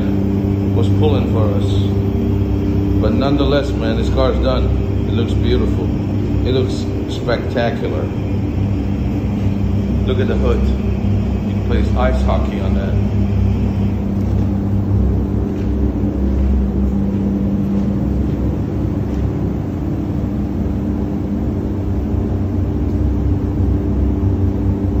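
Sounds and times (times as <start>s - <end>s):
constant low hum: 0.0s - 25.0s
low mechanical rumble: 0.0s - 25.0s.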